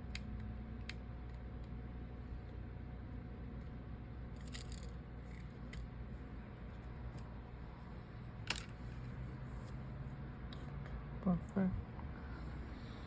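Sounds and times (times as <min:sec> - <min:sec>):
small tools clicking and scraping: 0:04.4 - 0:05.9.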